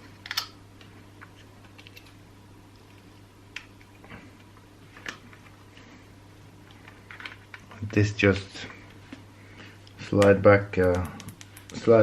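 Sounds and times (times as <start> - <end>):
steady low hum: 0.0 - 12.0
small parts clicking and tapping: 10.2 - 11.9.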